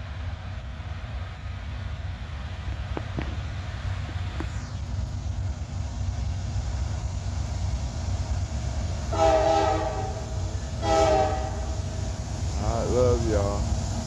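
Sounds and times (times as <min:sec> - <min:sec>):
train rumbling: 0:00.0 - 0:14.0
locomotive air horn blasts: 0:09.0 - 0:12.0.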